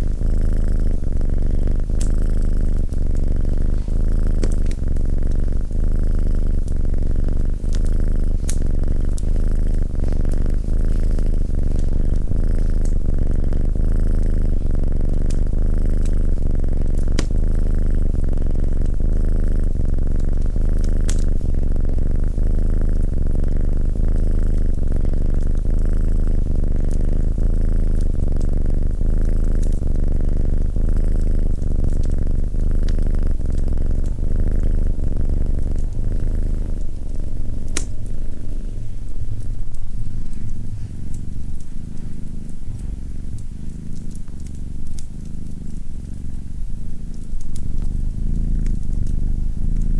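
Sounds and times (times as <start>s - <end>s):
cat purring: 0.0s - 49.9s
fireplace crackles: 1.7s - 5.8s, 29.6s - 29.8s, 34.8s - 49.9s.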